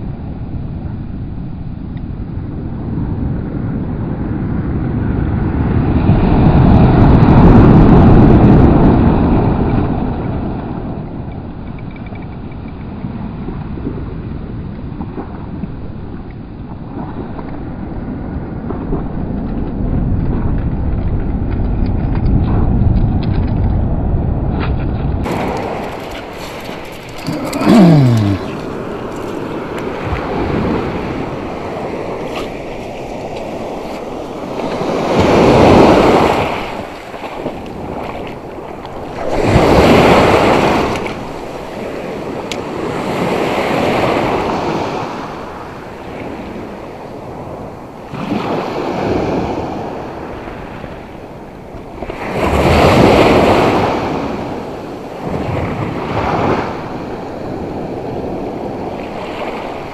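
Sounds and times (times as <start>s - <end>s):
wind buffeting microphone: 0.0s - 59.9s
surf breaking on beach: 25.2s - 46.4s.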